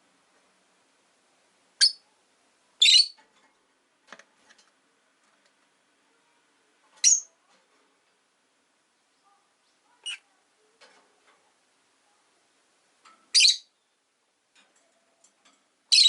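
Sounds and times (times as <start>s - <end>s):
lovebirds chirping: 1.8s - 2.2s, 2.8s - 3.2s, 6.2s - 7.5s, 8.8s - 10.8s, 13.2s - 14.2s.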